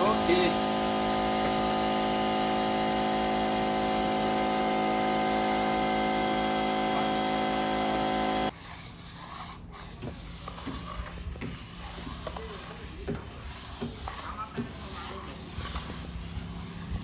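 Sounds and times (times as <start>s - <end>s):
power tool motor whining: 0.0s - 8.5s.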